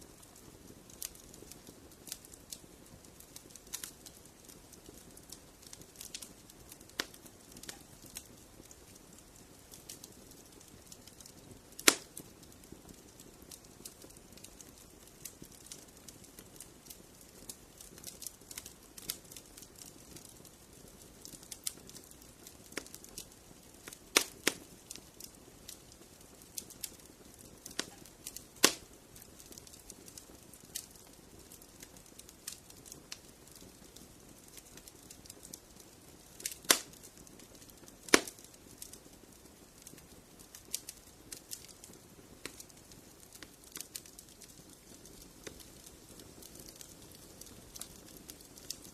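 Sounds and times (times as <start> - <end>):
low steady hiss: 0.0 - 48.9
wood fire crackling: 0.0 - 48.9.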